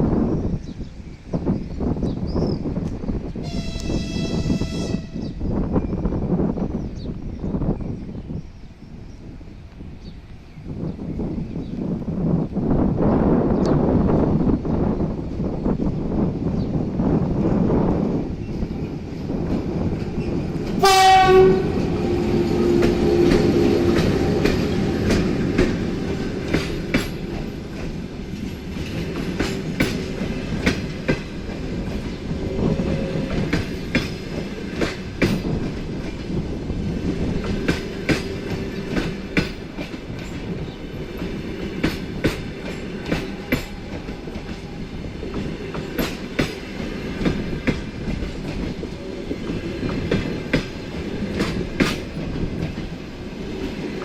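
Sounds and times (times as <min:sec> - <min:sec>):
train rumble: 0:00.0 - 0:54.0
train horn blast: 0:03.4 - 0:05.4, 0:20.8 - 0:24.4, 0:32.4 - 0:33.6
train wheels clicking over rail joints: 0:17.9 - 0:54.0.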